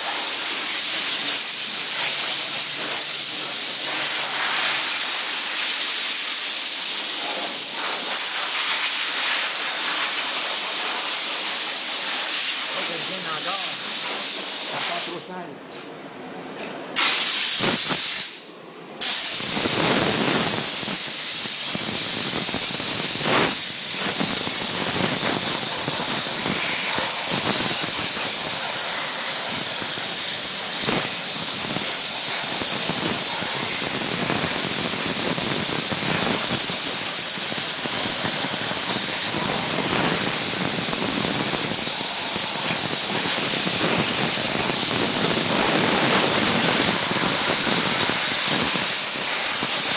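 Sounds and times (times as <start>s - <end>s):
steam hissing from steam cleaner: 0.0s - 15.3s, 17.0s - 18.4s, 19.0s - 49.9s.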